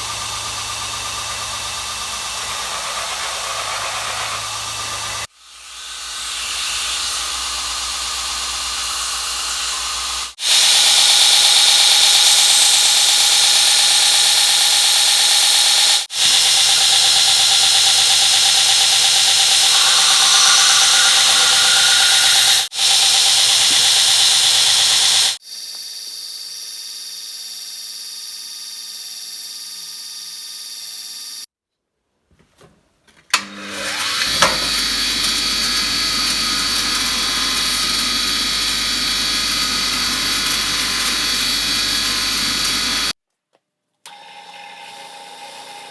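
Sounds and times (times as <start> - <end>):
machine starting up: 0.0 - 5.3, 15.7 - 25.4, 33.4 - 43.1
power tool grinding hiss: 0.0 - 25.4, 33.8 - 43.2
steady machine tone: 16.2 - 25.4.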